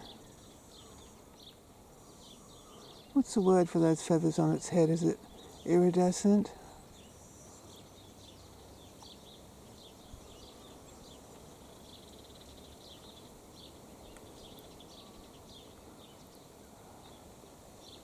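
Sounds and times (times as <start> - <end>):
quiet background hiss: 0.0 - 18.0
small birds chirping: 0.0 - 18.0.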